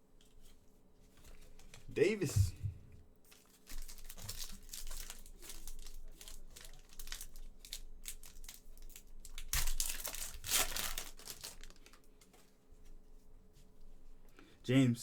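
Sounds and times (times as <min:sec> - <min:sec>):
card wrappers crinkling: 0:03.3 - 0:12.3.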